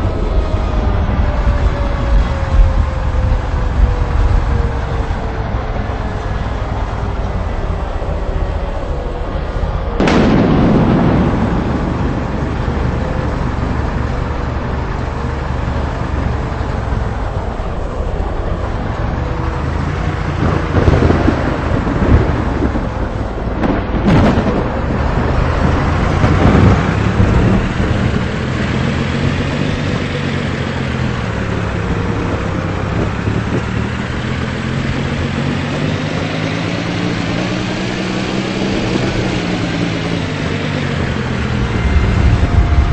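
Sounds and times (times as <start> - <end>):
vehicle engine rumbling: 0.0 - 42.9
sharp crack: 10.0 - 17.4.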